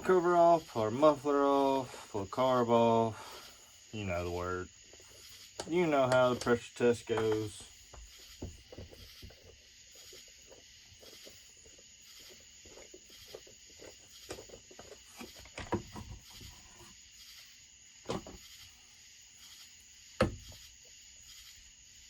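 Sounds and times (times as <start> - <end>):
steady faint hiss: 0.0 - 22.0
hand tools clicking and knocking: 5.6 - 7.6.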